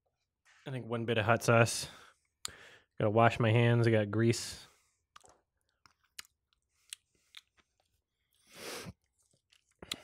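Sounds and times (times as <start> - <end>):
chewing with wet clicks: 5.1 - 8.0, 9.0 - 10.0.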